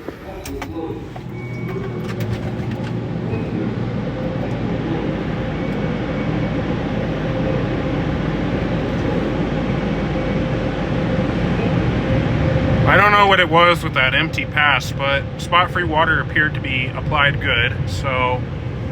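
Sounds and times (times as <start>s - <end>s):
car wash rushing noise: 0.0s - 18.9s
faint steady hum: 0.0s - 18.9s.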